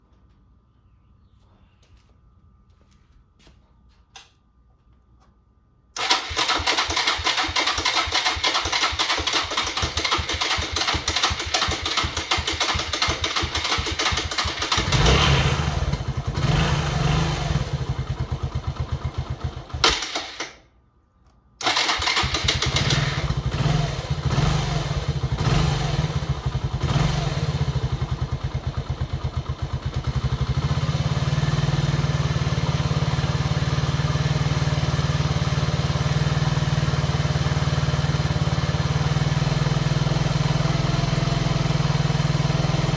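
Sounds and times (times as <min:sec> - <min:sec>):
electric starter cranking engine: 0:06.0 - 0:16.4, 0:19.2 - 0:20.6, 0:21.6 - 0:24.2
motorcycle engine idling: 0:06.0 - 0:19.8, 0:21.7 - 0:42.9.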